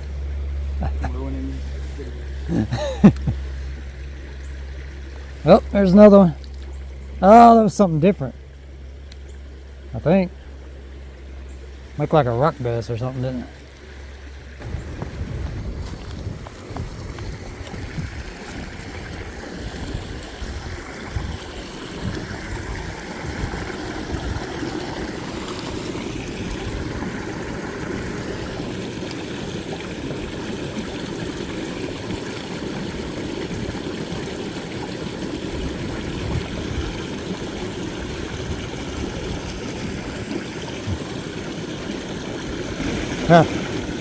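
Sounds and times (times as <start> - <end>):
creek water flowing: 0.0 - 44.0
low rumble: 14.4 - 21.4.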